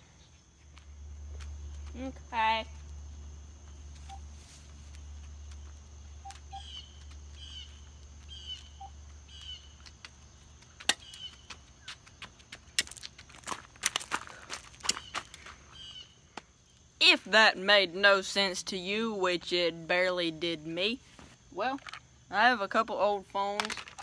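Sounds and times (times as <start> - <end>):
small bird chirping: 3.8 - 4.3, 5.5 - 12.0.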